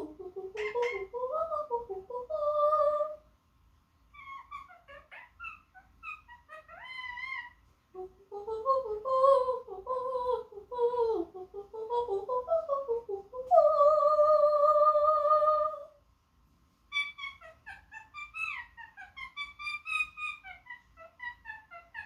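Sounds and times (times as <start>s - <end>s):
parrot singing warbling notes: 0.0s - 1.2s, 4.2s - 7.5s.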